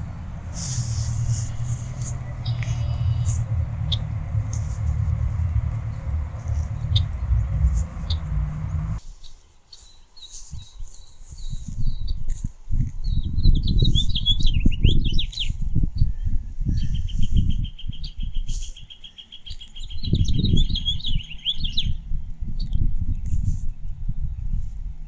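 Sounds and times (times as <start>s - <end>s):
low rumble in gusts: 0.0s - 9.0s
small songbirds singing: 0.0s - 12.3s, 13.0s - 23.3s.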